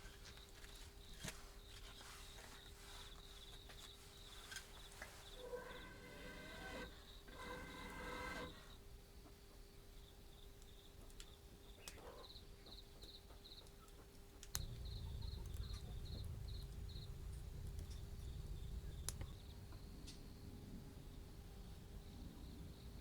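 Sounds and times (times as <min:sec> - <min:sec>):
cricket chirping: 0:00.0 - 0:23.0
sharp clicks: 0:05.4 - 0:08.8, 0:14.4 - 0:20.2
low rumble: 0:14.5 - 0:22.9.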